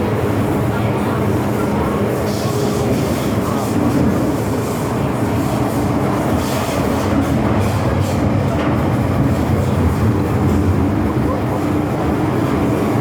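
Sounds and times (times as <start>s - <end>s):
train rolling on rails: 0.0s - 13.0s.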